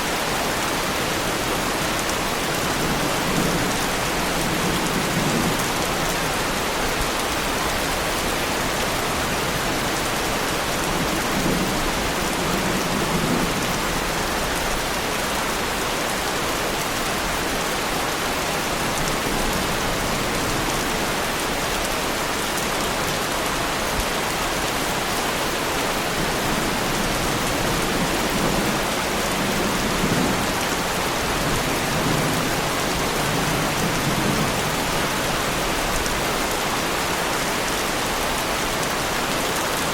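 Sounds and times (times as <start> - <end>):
heavy rain on a car: 0.0 - 39.9.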